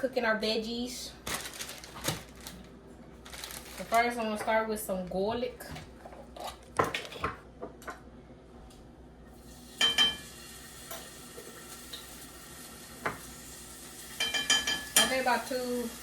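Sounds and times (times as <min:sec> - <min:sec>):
garlic sizzling in a hot pan: 0:09.4 - 0:16.0
metal spoon clinking on pan: 0:14.2 - 0:15.2.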